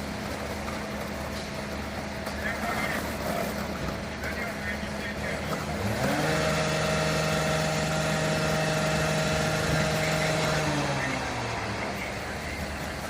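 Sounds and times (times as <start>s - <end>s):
fire truck diesel engine revving: 0.0s - 13.0s.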